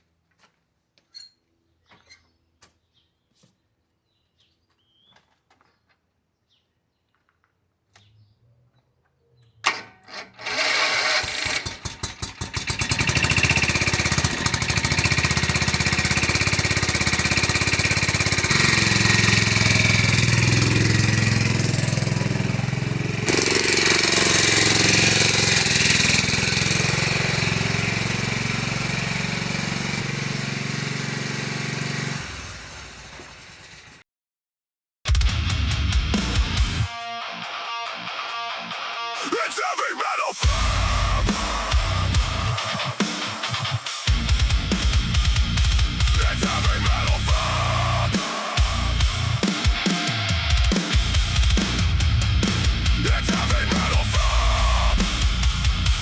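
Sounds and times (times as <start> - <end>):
engine starting with a bang: 9.6 - 15.4.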